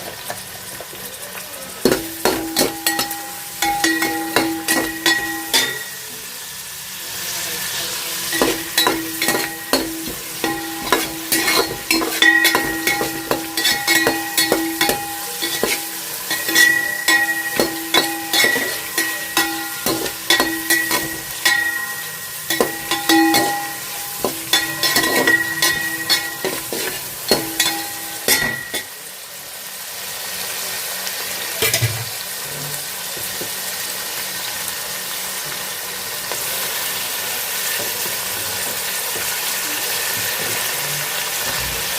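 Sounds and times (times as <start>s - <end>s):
oil sizzling: 0.0s - 41.9s
metal spoon scraping a pan: 1.9s - 6.0s, 8.3s - 29.0s.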